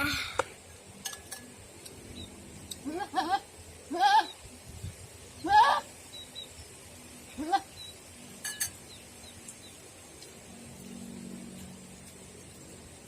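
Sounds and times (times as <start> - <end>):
goat bleating: 2.8 - 4.4, 5.4 - 5.9.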